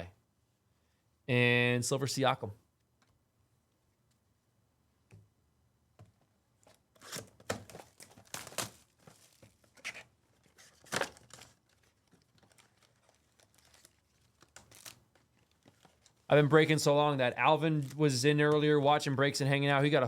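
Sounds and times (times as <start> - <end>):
wrapper tearing and crinkling: 6.6 - 16.3.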